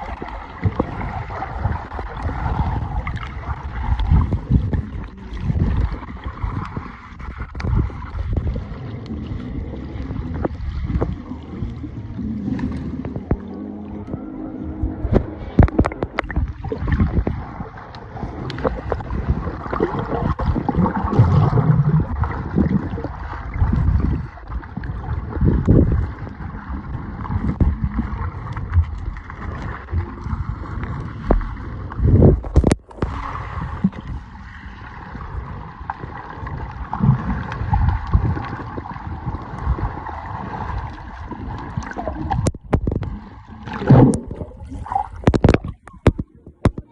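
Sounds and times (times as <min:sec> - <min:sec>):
underwater river gurgling: 0:00.0 - 0:46.9
low underwater knocks: 0:12.6 - 0:17.5, 0:42.2 - 0:46.9.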